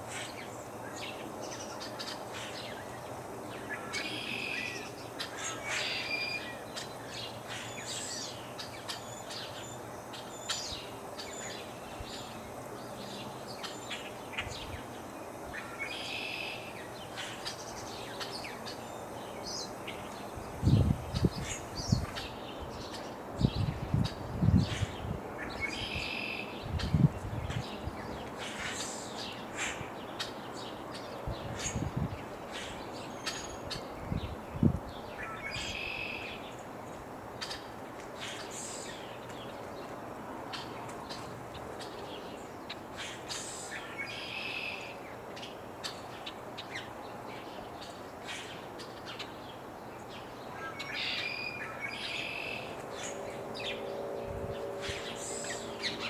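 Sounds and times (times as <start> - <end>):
light breeze: 0.0 - 56.0
birds chirping: 0.2 - 56.0.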